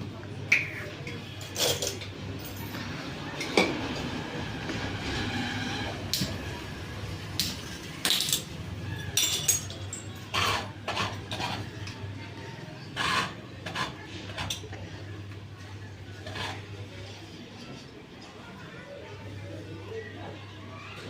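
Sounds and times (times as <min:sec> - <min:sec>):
metallic clinks and clanks: 0:09.2 - 0:10.2.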